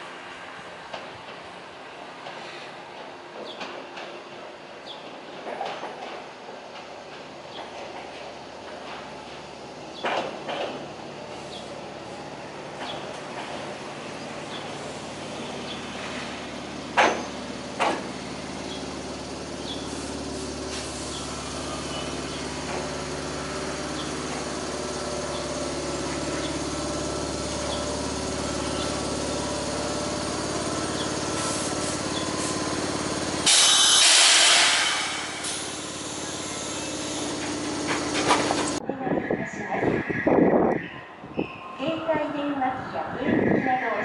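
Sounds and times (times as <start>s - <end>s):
electric train motor whine: 11.2s - 38.8s
loud burst of hissing: 30.9s - 37.5s.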